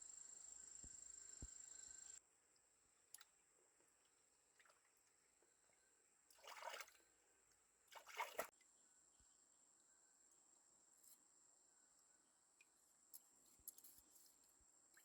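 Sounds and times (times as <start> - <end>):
water trickling: 4.6 - 7.0, 7.9 - 8.5.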